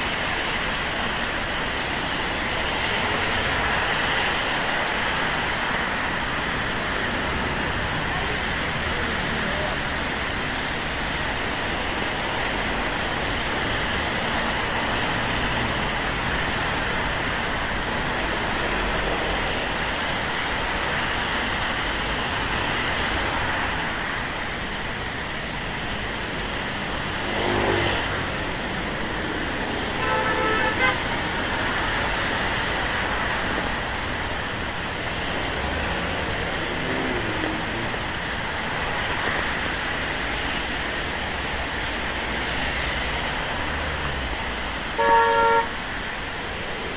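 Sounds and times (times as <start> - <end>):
steady rain hiss: 0.0 - 46.9
traffic on wet roads: 0.0 - 46.9
car horn honk: 30.0 - 31.1, 45.0 - 45.8.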